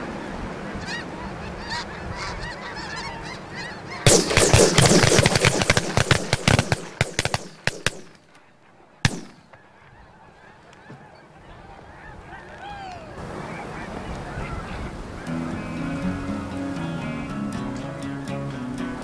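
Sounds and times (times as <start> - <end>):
geese calling: 0.7 - 12.7
shotgun shots: 4.1 - 8.4, 9.0 - 9.7.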